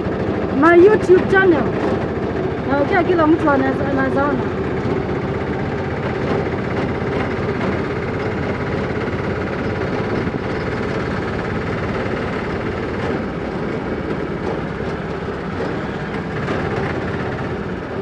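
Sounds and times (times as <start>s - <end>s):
motorcycle engine running: 0.0s - 18.0s
road and wind noise: 0.0s - 18.0s.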